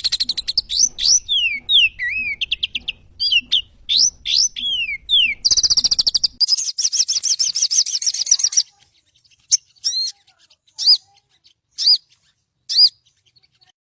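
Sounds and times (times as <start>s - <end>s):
bird whistled notes: 0.0s - 8.7s, 11.8s - 13.0s
bird chattering trills: 0.0s - 13.8s.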